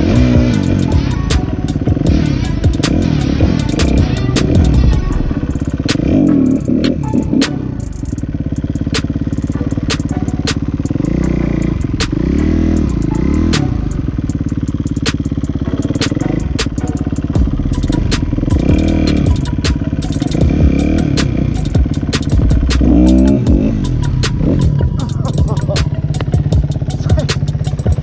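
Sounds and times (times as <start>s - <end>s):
dirt bike engine revving: 0.0s - 28.0s
sharp clacks: 9.9s - 11.0s, 17.9s - 20.5s, 21.1s - 28.0s.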